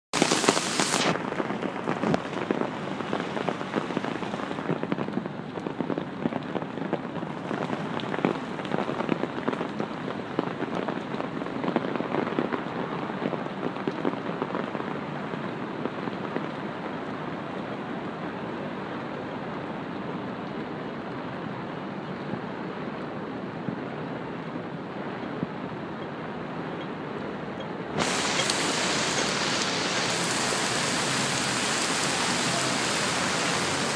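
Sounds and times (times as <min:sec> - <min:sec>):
heavy rain on umbrella: 0:00.1 - 0:19.9, 0:28.0 - 0:33.9
loud rush of noise: 0:00.2 - 0:01.3, 0:28.0 - 0:33.9.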